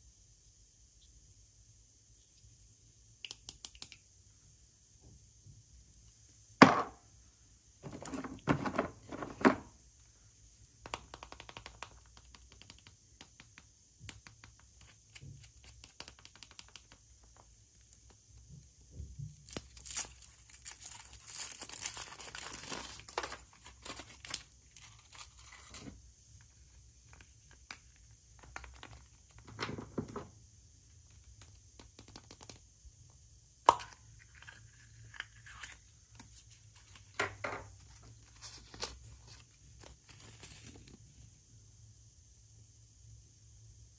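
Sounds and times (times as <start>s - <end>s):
packaging tearing and crinkling: 19.4s - 25.8s.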